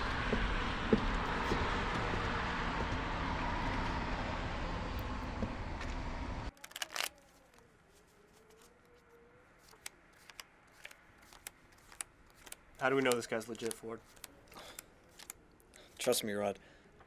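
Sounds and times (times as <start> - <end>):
road and engine noise in car: 0.0 - 6.5.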